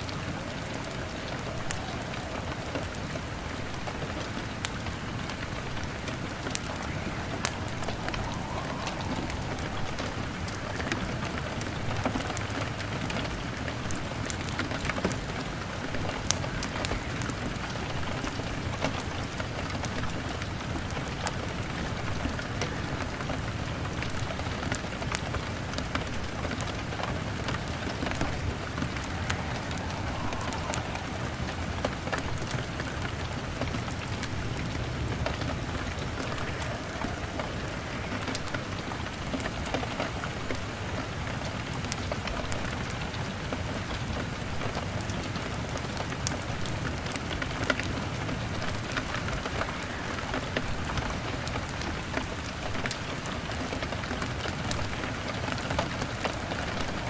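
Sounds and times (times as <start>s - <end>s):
log fire crackling: 0.0s - 42.6s
rain pattering on a window: 0.0s - 57.0s.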